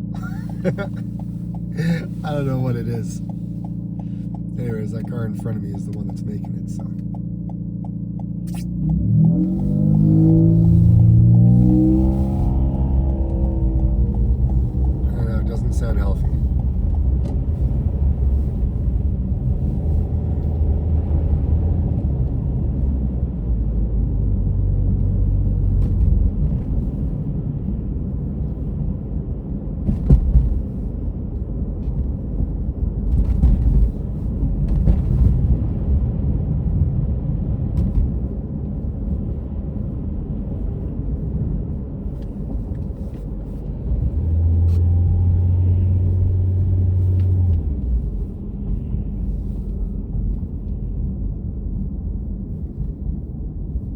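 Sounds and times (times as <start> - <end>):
car cabin rumble: 0.0 - 53.9
low droning hum: 0.0 - 53.9
thump: 29.9 - 30.5.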